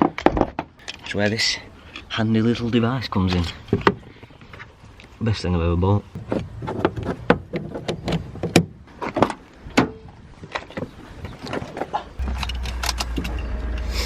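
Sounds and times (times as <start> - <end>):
clamps clicking and rattling: 12.2 - 13.9
steady low rumble: 12.2 - 14.0.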